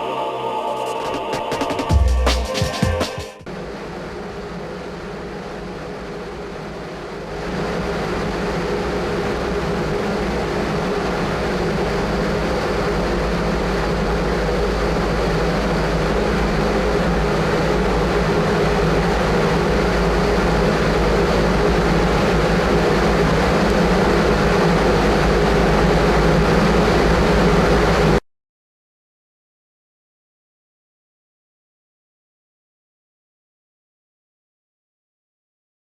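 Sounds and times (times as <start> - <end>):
fan blowing strong wind: 3.4 - 28.2
low machine hum: 3.5 - 28.2.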